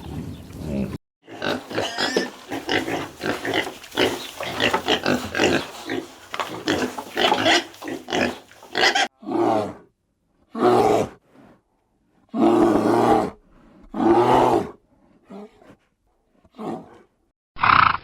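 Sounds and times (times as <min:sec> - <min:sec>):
pigs grunting and squealing: 0:00.0 - 0:09.9, 0:12.4 - 0:15.7, 0:17.6 - 0:18.0.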